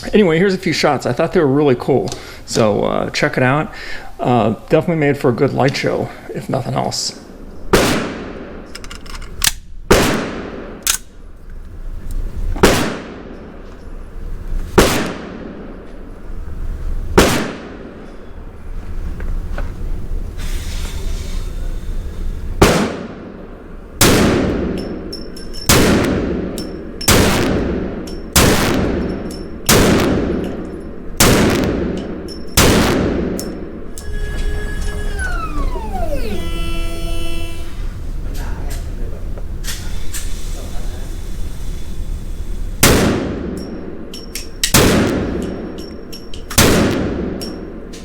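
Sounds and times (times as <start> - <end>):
pistol shots: 7.7 - 8.6, 9.9 - 10.8, 12.6 - 13.4, 14.8 - 15.7, 17.2 - 17.9, 22.6 - 23.2, 24.0 - 24.8, 25.7 - 26.5, 27.1 - 29.1, 29.7 - 30.6, 31.2 - 32.0, 32.6 - 33.5, 42.8 - 43.6, 44.7 - 45.5, 46.6 - 47.4.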